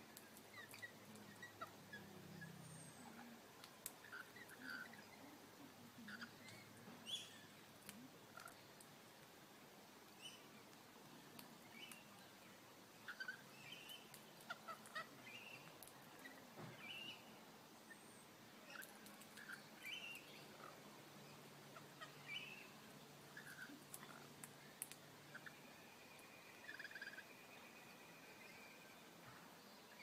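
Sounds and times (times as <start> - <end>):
faint bird chirps: 0.1 - 8.8, 10.1 - 10.7, 11.3 - 30.0
small ticks: 10.7 - 12.3, 13.1 - 16.3, 18.7 - 20.2, 23.4 - 25.5.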